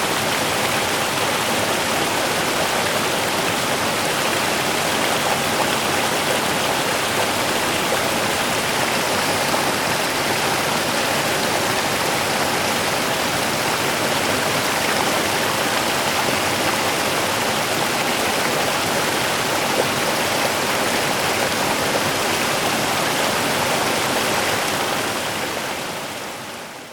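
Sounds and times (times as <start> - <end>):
water flowing over stones: 0.0 - 26.2.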